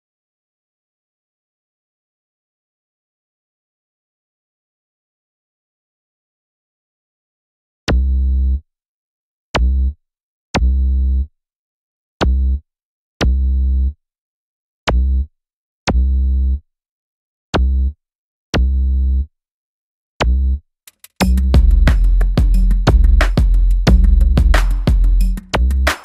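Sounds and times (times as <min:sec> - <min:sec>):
electronic music track: 0:21.2 - 0:26.0.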